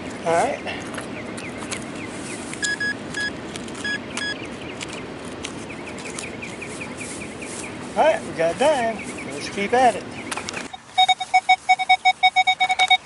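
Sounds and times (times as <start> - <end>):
handling and digging clicks: 2.5 - 6.6
metal detector beeps: 2.6 - 4.4, 10.6 - 13.0.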